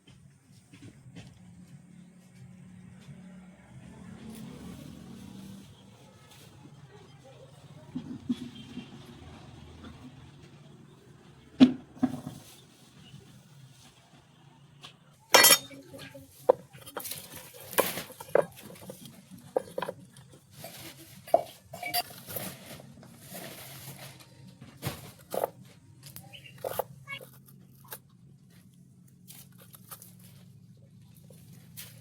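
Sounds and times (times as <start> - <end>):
light knocks and clinks: 15.3 - 15.8.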